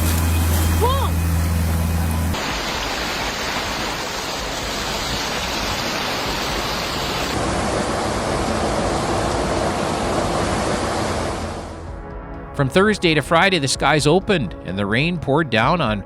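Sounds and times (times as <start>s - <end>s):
rushing floodwater: 0.0s - 11.8s.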